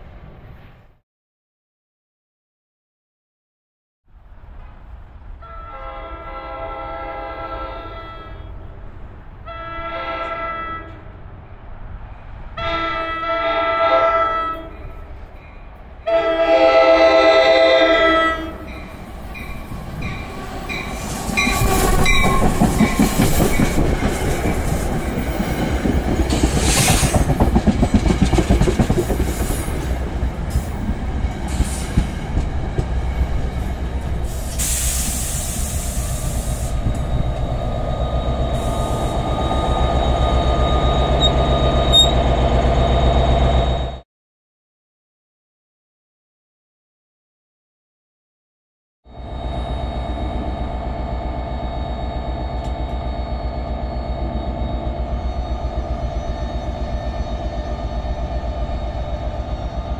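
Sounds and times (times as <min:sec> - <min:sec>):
train chime air horn: 0:09.5 - 0:11.1, 0:12.6 - 0:15.1, 0:16.1 - 0:22.2, 0:38.1 - 0:42.2
train wheels clattering over rails: 0:18.8 - 0:34.8.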